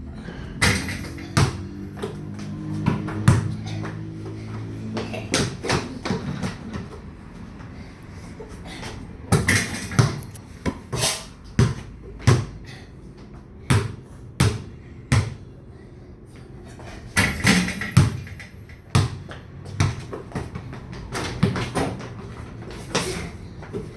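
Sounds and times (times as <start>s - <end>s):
ball bouncing on hard floor: 0.6s - 7.0s, 9.3s - 11.0s, 11.6s - 12.6s, 13.7s - 15.4s, 17.2s - 23.9s.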